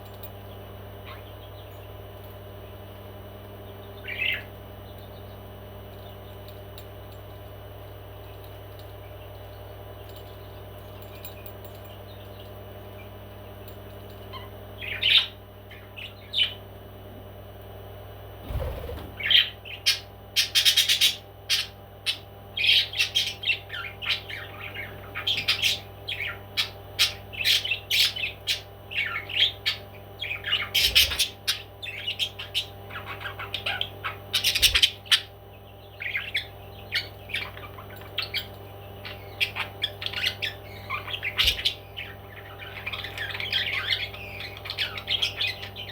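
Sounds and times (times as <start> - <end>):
parrot squawking: 30.4 - 31.6, 39.1 - 45.9.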